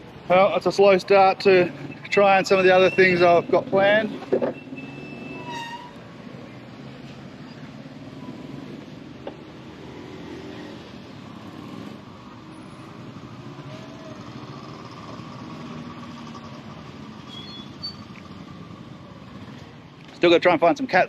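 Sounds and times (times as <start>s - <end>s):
passing vehicle engines hum: 0.0s - 21.0s.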